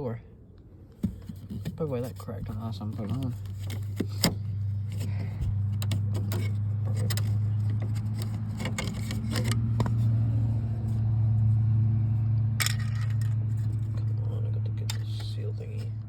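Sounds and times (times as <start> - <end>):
clicks of parts and screws handled: 5.0 - 10.0, 12.6 - 14.1.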